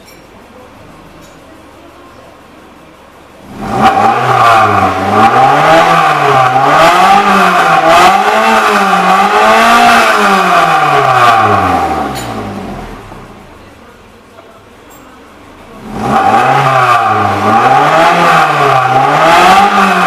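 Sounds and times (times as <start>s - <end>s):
car engine revving: 0.6s - 13.8s, 15.3s - 20.0s.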